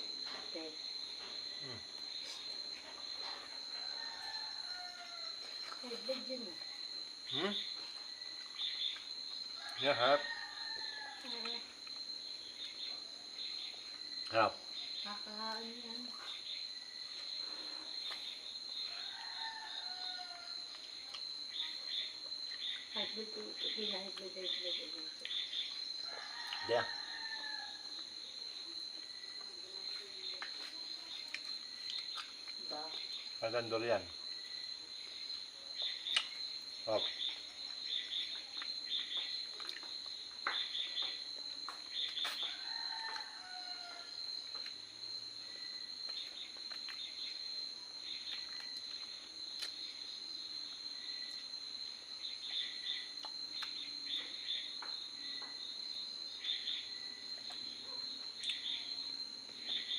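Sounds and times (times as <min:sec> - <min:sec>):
crickets droning: 0:00.0 - 0:59.9
insects chirping: 0:00.0 - 0:59.9
distant rooster crowing: 0:03.7 - 0:05.6, 0:09.6 - 0:11.4, 0:18.8 - 0:20.7, 0:26.0 - 0:28.0, 0:42.2 - 0:44.3.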